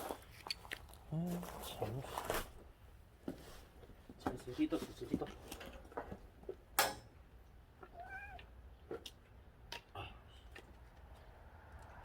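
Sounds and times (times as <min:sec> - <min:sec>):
cat meowing: 0:07.8 - 0:08.5.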